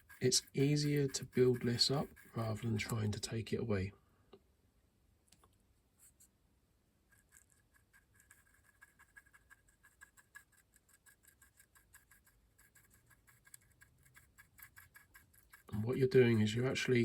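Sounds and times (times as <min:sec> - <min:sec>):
stiff brush scrubbing plastic: 0:00.0 - 0:03.2, 0:07.2 - 0:17.0.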